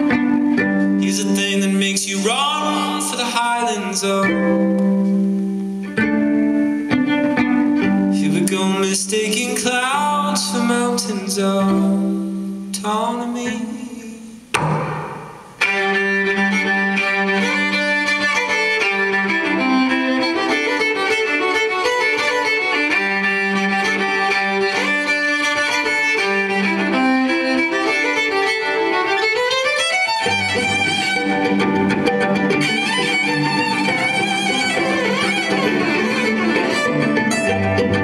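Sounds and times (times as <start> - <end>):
violin playing: 0.0 - 4.6, 15.6 - 38.0.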